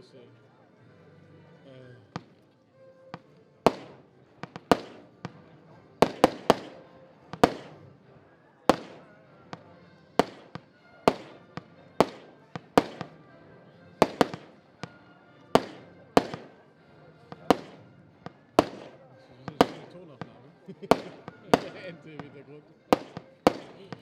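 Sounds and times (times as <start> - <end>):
firework bangs with echo: 2.2 - 2.4, 3.2 - 7.9, 8.7 - 13.3, 14.0 - 16.7, 17.3 - 24.0.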